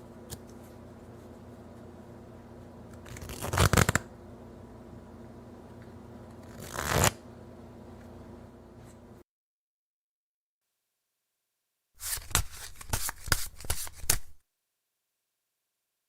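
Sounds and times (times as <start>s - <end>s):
faint steady hum: 0.0s - 9.2s
playing cards being shuffled: 2.9s - 4.1s, 6.3s - 7.2s, 12.0s - 14.4s.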